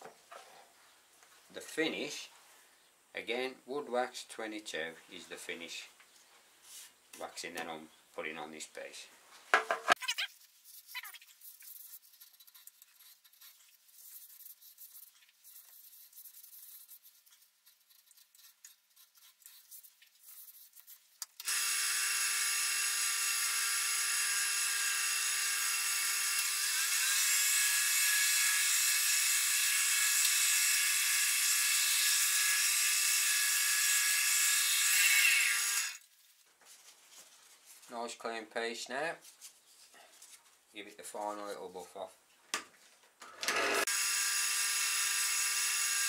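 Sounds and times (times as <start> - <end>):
wood lathe whining: 21.4 - 36.0, 43.4 - 46.0.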